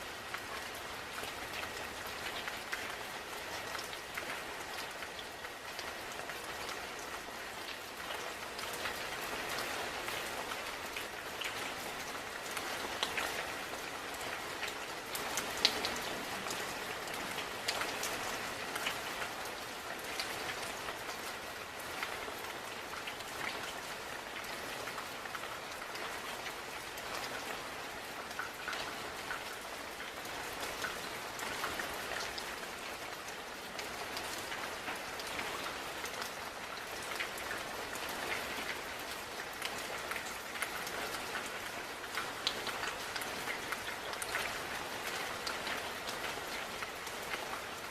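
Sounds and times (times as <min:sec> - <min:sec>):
steady rain falling: 0:00.0 - 0:47.9
raindrops ticking: 0:33.0 - 0:47.9.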